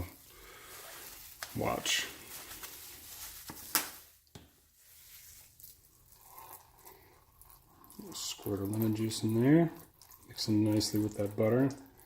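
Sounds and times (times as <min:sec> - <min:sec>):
faint rustling: 0:00.0 - 0:05.8.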